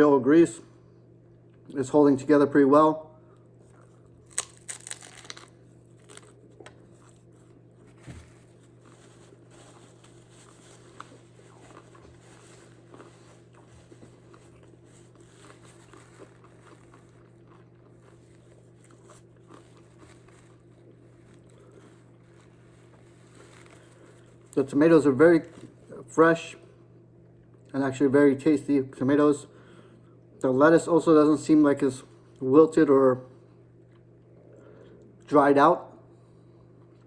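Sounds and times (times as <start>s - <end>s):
steady low hum: 0.0s - 37.0s
crunching bites into taco: 3.7s - 9.4s, 10.2s - 24.6s
faint chewing: 8.5s - 24.6s.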